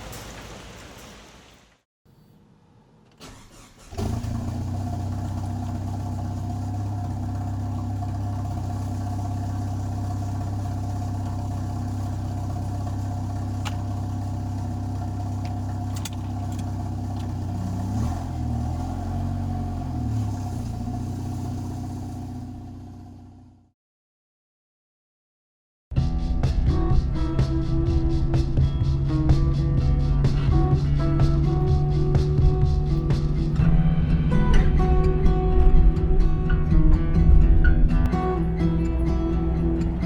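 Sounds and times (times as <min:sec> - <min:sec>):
car engine starting and running: 0:00.0 - 0:23.7, 0:26.8 - 0:40.0.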